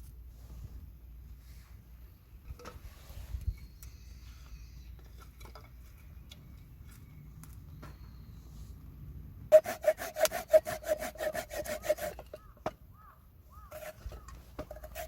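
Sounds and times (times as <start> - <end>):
steady low rumble: 5.8 - 9.5.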